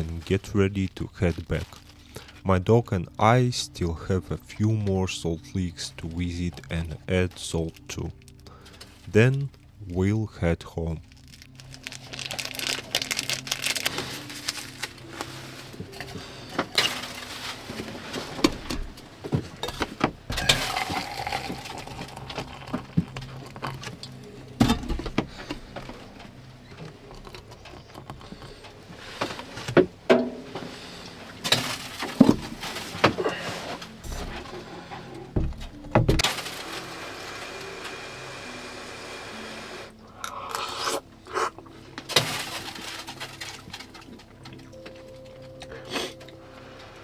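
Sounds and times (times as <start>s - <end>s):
objects knocking and clinking: 12.0s - 34.4s.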